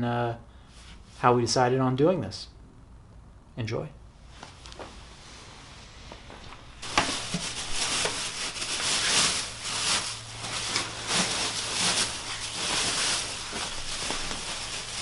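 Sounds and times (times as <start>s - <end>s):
packing material rustling: 6.8s - 15.0s.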